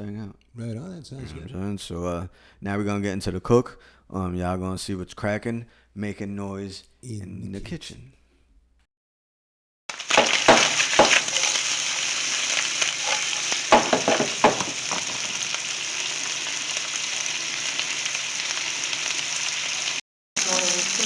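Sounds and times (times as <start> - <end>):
food sizzling in a hot pan: 9.9 - 21.0
utensil knocking and scraping pan: 10.1 - 11.6, 13.0 - 15.3.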